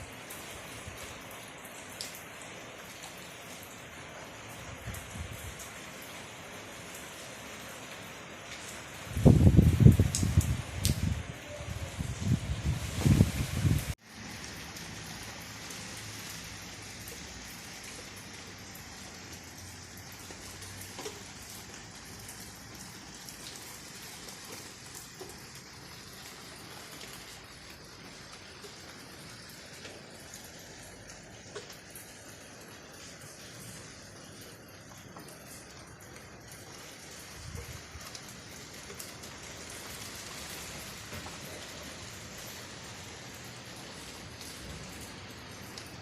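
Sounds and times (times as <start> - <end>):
steady rain falling: 0.0 - 46.0
separate drips: 13.9 - 46.0.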